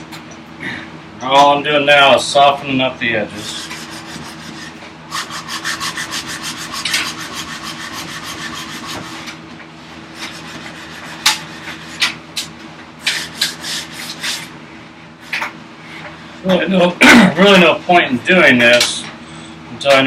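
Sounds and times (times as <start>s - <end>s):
hand tool rasping wood: 3.4s - 9.4s, 10.2s - 12.2s, 13.0s - 14.5s.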